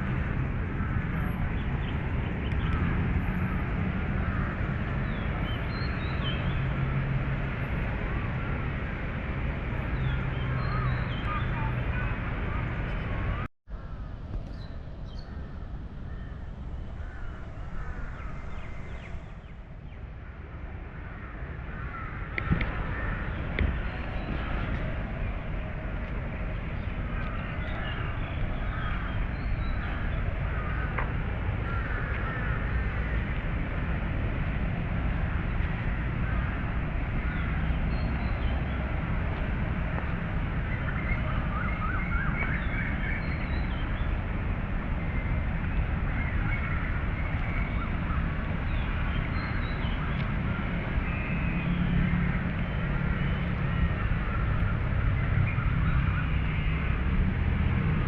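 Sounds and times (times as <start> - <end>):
distant city traffic rumble: 0.0 - 58.0
birds chirping: 21.1 - 44.3.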